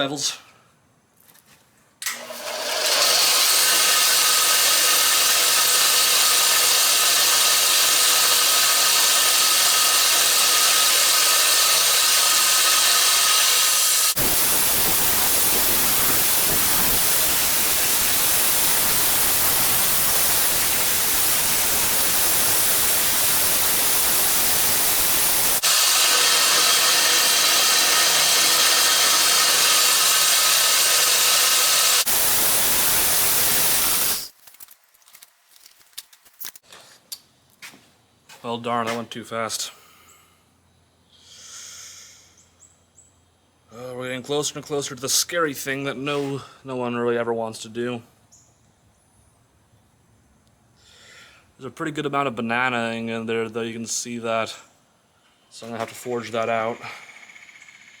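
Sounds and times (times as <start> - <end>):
grinder grinding knife blade: 2.1 - 34.4.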